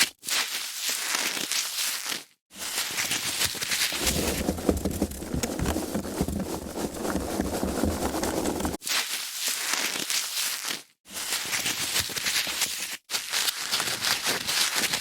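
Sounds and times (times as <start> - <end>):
foam packaging crackling: 4.0 - 8.8.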